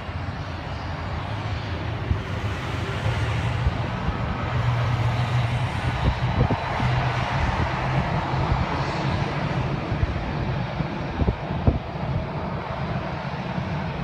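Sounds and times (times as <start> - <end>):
low jet engine drone: 0.0 - 14.0.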